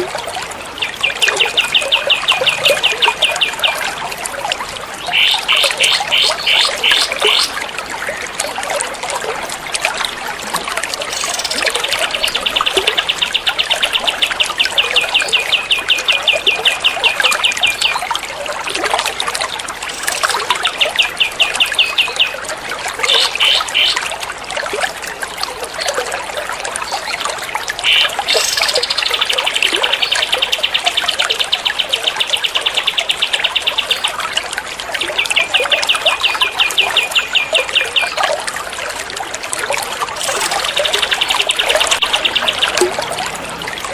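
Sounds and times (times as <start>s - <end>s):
water trickling: 0.0s - 43.9s
songbird trilling: 40.2s - 42.8s.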